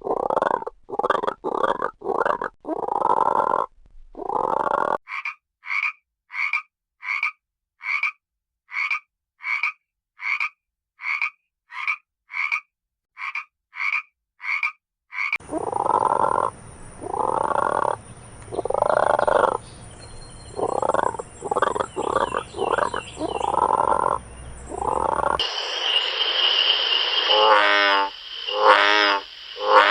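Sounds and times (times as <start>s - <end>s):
frogs croaking deeply: 0.0s - 29.9s
frogs calling short high calls: 5.1s - 19.6s, 20.2s - 29.9s
background hiss: 20.6s - 29.9s.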